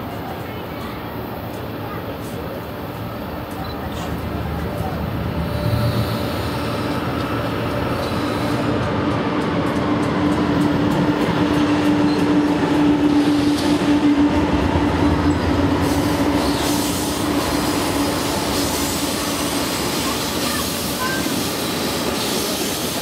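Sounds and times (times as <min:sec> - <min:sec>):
diesel locomotive drone: 0:00.0 - 0:23.0
freight cars rumbling past: 0:02.8 - 0:21.0.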